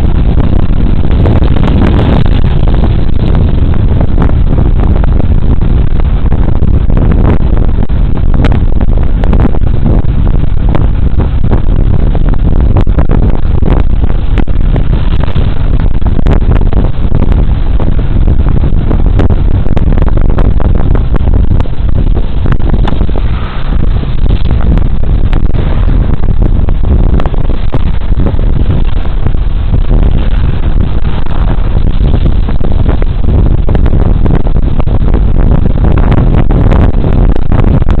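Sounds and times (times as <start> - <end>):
road noise: 0.0 - 38.0
wind rumble on microphone: 0.0 - 38.0.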